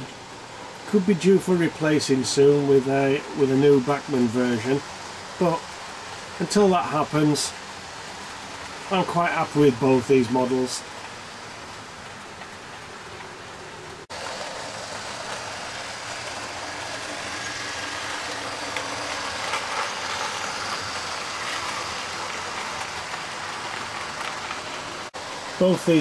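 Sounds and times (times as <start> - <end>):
model train motor whirring: 14.1 - 25.1.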